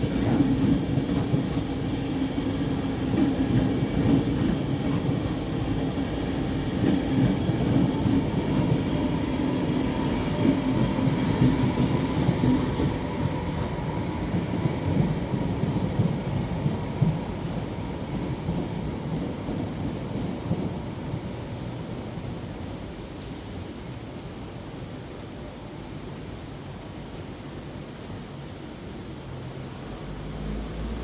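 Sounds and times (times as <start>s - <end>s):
train rumbling on rails: 0.0s - 31.0s
burst of hiss: 11.6s - 13.2s.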